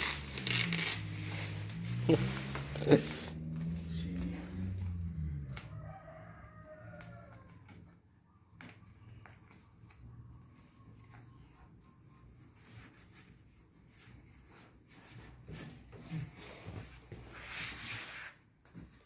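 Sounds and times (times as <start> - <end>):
rooster crowing: 5.1 - 7.9.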